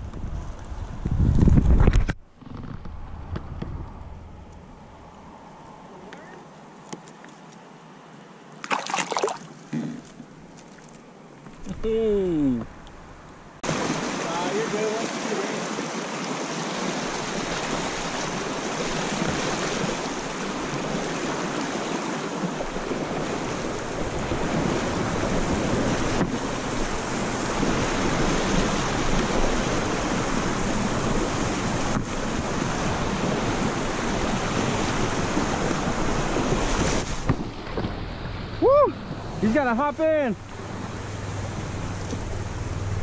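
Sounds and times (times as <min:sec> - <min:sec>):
wind noise on microphone: 0:00.0 - 0:04.6, 0:22.7 - 0:39.4
river water rushing: 0:04.0 - 0:09.7, 0:13.0 - 0:43.0.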